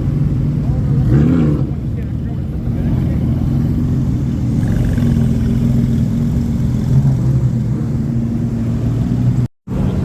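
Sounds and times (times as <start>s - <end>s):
car engine at low revs: 0.0s - 10.0s.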